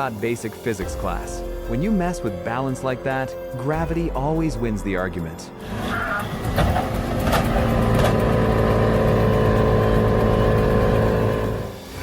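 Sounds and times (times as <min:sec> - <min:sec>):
heavy machine engine running: 0:06.2 - 0:12.0.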